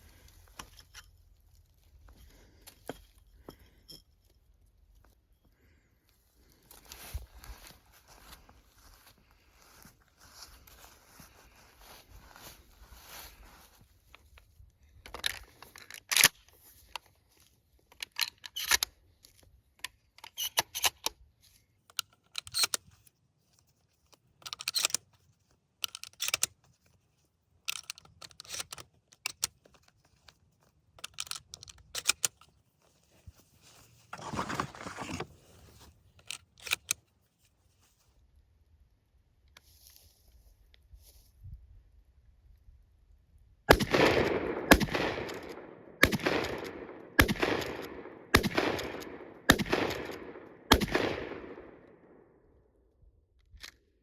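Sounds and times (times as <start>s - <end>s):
rustling: 32.6s - 36.2s
scraping: 34.0s - 35.8s.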